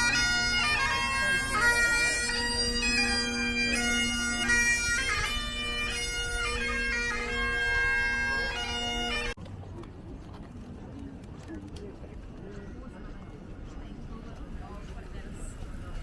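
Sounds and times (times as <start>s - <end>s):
bagpipe drone: 0.0s - 9.4s
bagpipe melody: 0.0s - 9.4s.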